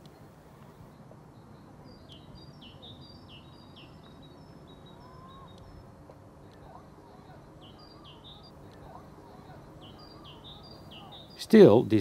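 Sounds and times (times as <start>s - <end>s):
low outdoor background noise: 0.0s - 12.0s.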